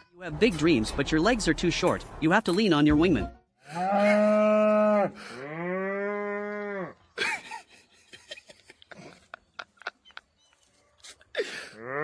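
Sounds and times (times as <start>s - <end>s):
animal mooing: 3.6s - 7.0s.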